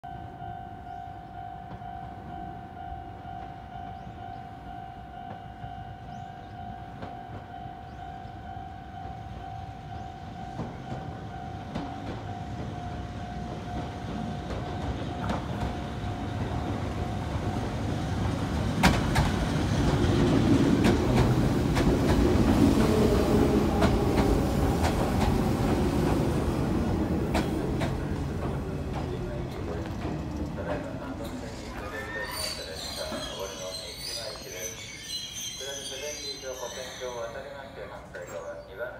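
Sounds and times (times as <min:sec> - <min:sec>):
level crossing warning bell: 0:00.0 - 0:18.2, 0:32.3 - 0:38.6
wheels clicking over rail joints: 0:26.9 - 0:31.9.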